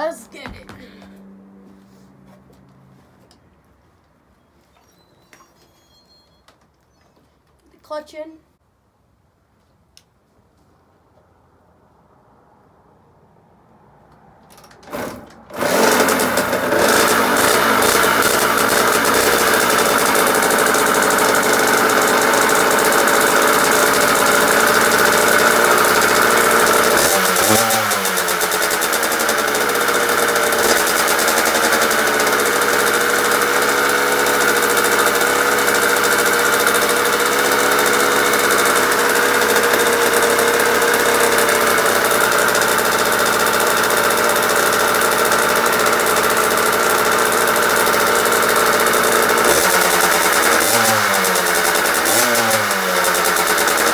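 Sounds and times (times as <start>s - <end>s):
two-stroke engine running: 14.6s - 53.9s.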